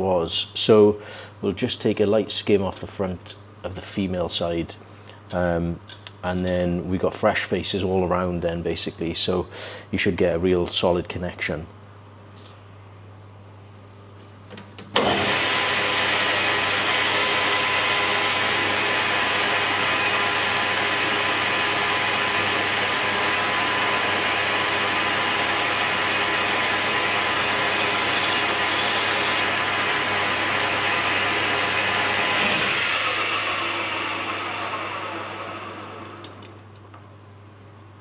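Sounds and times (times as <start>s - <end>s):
lathe running with hum: 15.0s - 37.1s.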